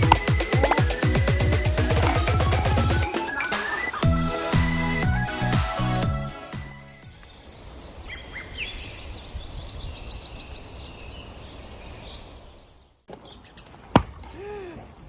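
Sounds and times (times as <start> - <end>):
axe striking log: 0.0 - 2.7, 14.0 - 14.5
birds chirping: 0.0 - 14.2.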